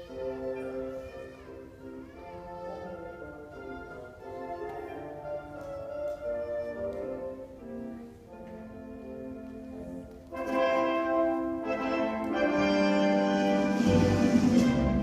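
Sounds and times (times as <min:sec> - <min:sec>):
orchestral strings: 0:00.0 - 0:15.0
brass sustained notes: 0:10.3 - 0:15.0.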